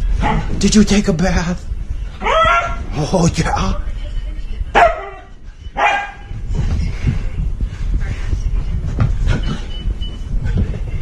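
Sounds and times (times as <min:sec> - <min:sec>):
dull thumps and rumbling: 0:06.1 - 0:11.0.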